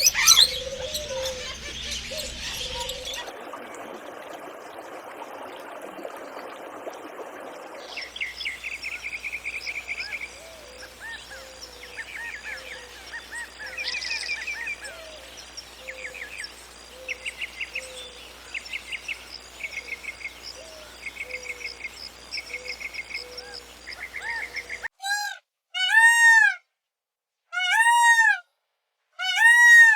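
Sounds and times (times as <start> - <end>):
drawn-out arching bird calls: 0.0 - 3.3, 8.0 - 24.9
songbirds trilling and chirping: 0.0 - 4.2, 7.1 - 24.9
steady rushing hiss: 0.0 - 24.9.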